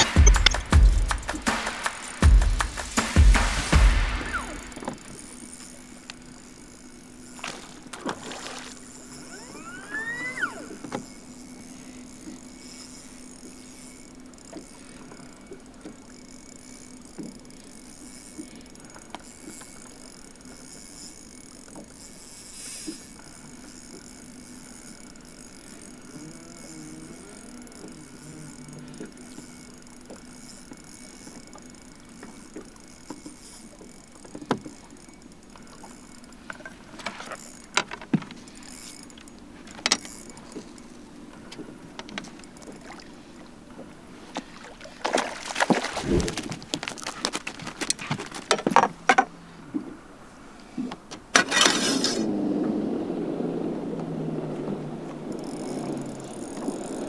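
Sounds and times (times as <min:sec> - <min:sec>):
sharp clicks and knocks: 0:00.0 - 0:05.2
low motor hum: 0:00.0 - 0:12.3.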